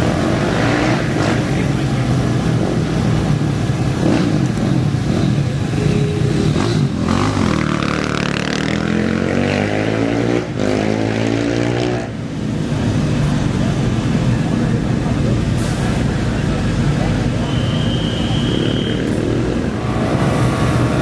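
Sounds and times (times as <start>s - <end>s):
race engine revving and accelerating: 0.0s - 12.2s, 18.6s - 21.0s.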